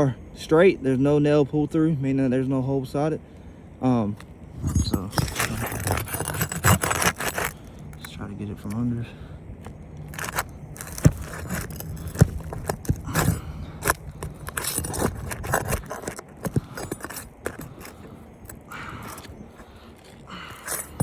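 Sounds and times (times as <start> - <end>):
hand tool scraping shingles: 4.7 - 7.6, 10.1 - 21.0.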